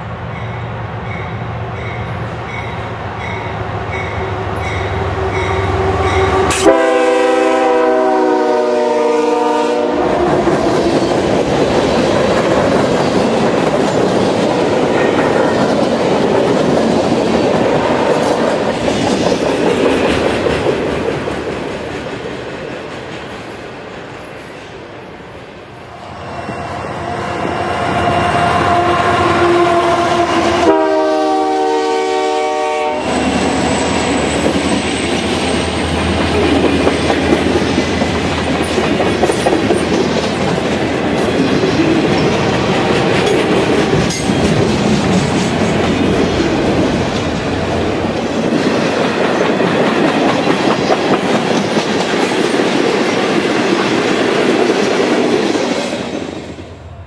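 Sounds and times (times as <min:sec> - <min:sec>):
train horn blast: 0:05.2 - 0:10.5, 0:26.0 - 0:34.4.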